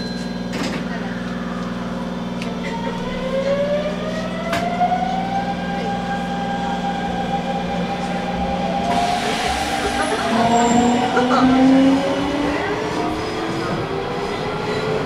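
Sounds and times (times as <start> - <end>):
train traction motors whining: 0.2 - 15.0
train running noise rushing: 6.0 - 15.0.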